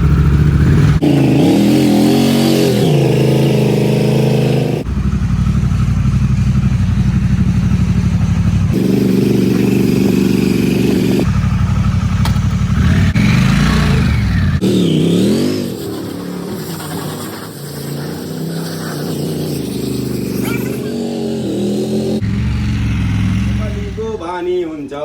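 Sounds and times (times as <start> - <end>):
motorcycle engine running: 0.0 - 24.2
motorcycle throttle blip: 11.8 - 12.8.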